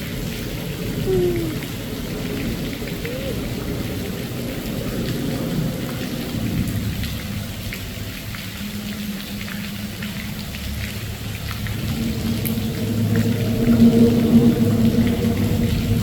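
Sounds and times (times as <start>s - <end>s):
raindrops ticking: 0.0s - 16.0s
wind buffeting microphone: 11.0s - 16.0s.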